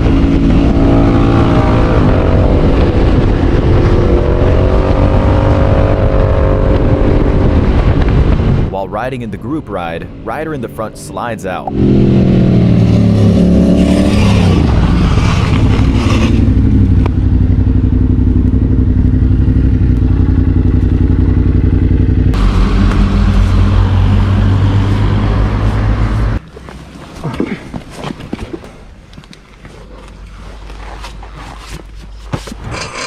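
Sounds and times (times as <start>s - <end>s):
motorcycle engine running: 15.5s - 26.4s
clicks and scrapes: 29.6s - 33.0s.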